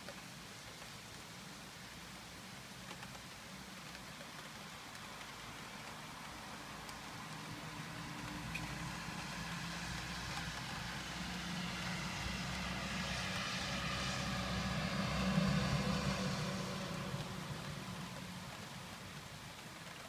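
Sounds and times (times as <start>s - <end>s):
rain hissing: 0.0s - 20.0s
vehicle engine humming: 5.2s - 20.0s.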